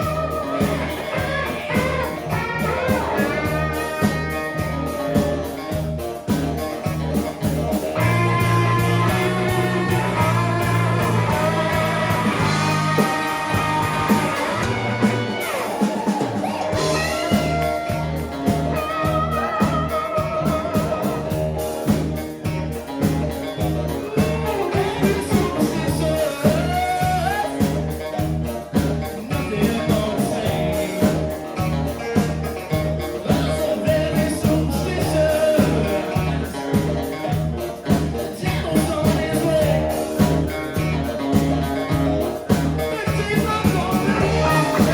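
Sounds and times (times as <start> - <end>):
drums and bass beat: 0.0 - 44.9
live rock band playing: 0.0 - 44.9
person singing: 23.4 - 28.2, 29.0 - 44.9.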